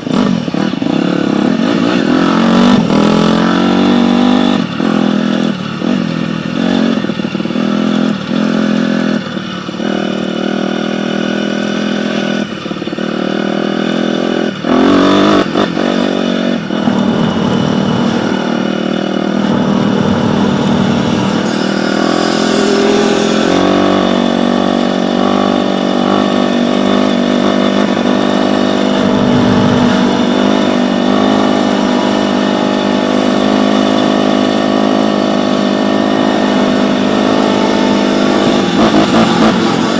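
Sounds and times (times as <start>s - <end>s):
dirt bike engine running hard: 0.0s - 39.9s.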